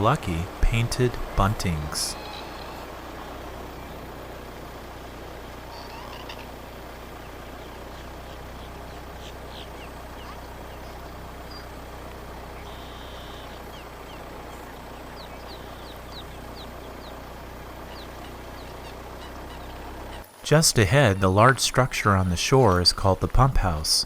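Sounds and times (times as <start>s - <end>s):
car driving slowly: 0.0s - 24.0s
bird chirps: 5.6s - 11.8s, 12.4s - 20.2s.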